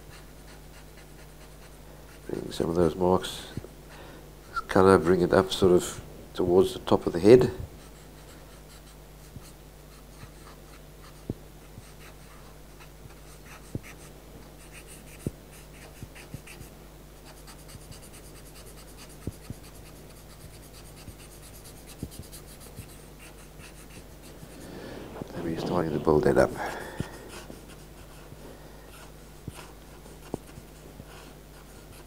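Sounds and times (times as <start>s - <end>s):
steady low hum: 0.0s - 32.0s
pencil scratching across paper: 0.1s - 2.4s, 7.8s - 24.6s, 27.1s - 28.3s, 28.9s - 32.0s.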